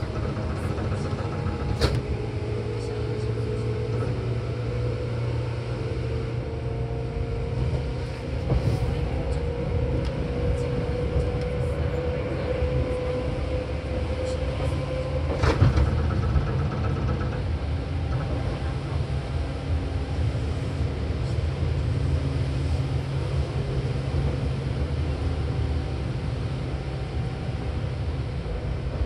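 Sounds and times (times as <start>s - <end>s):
train running rumble: 0.0s - 29.0s.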